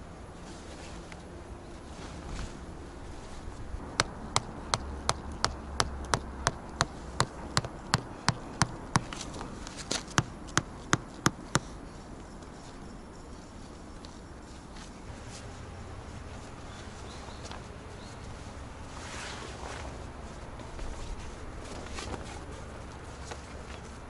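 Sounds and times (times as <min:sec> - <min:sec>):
sharp taps: 0:03.8 - 0:09.2, 0:09.9 - 0:11.7.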